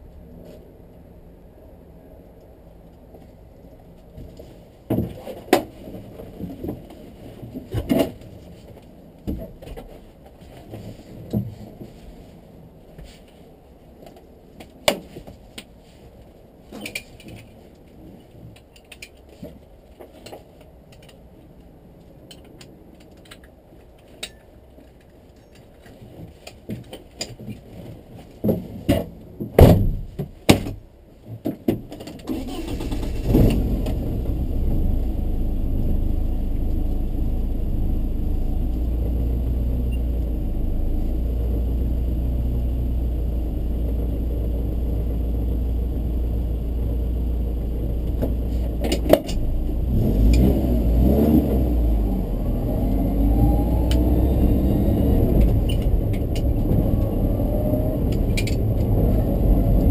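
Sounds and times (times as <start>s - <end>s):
car engine starting and idling: 32.2s - 59.9s.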